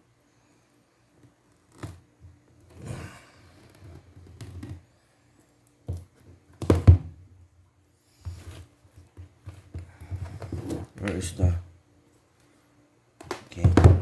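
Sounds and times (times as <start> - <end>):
cardboard box knocks and thuds: 13.6 - 14.0.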